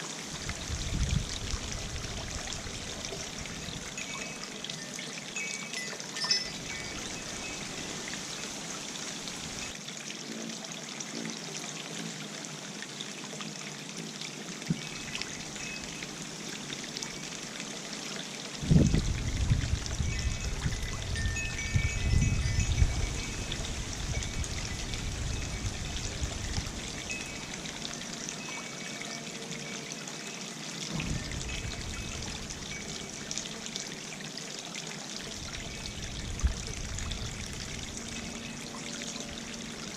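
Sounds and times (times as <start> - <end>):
fountain water trickling: 0.0 - 39.9
wind on microphone: 0.3 - 4.0, 18.6 - 27.7, 30.9 - 33.4, 35.3 - 38.4.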